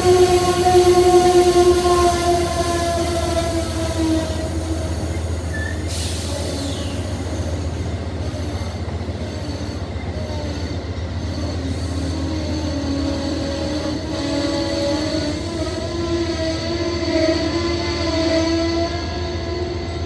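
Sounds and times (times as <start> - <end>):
train rolling with low rumble: 0.0 - 20.0
train wheels squealing: 0.0 - 20.0.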